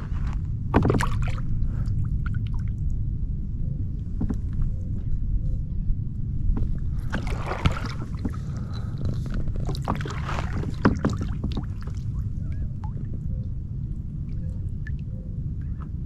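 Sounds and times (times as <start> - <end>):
steady low rumble: 0.0 - 16.0
paddle splashing and dripping: 0.7 - 2.8, 7.0 - 8.8, 9.5 - 13.3.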